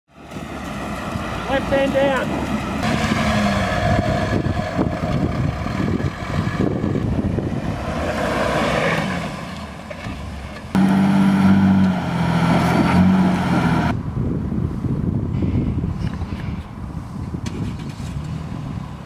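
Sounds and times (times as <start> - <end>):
engine revving under load: 0.2 - 14.0.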